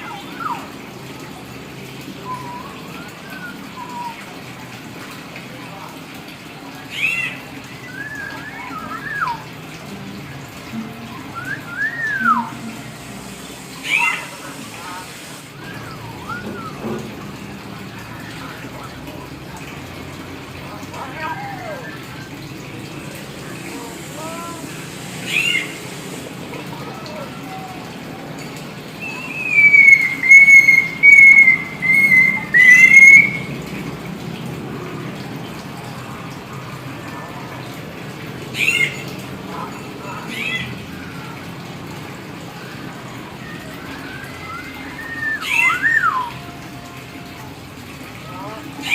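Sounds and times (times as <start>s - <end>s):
bird whistling calls: 0.0s - 0.8s, 2.2s - 4.4s, 6.8s - 9.6s, 11.1s - 12.9s, 13.8s - 14.6s, 15.5s - 17.1s, 25.2s - 25.9s, 29.0s - 33.5s, 42.6s - 46.6s.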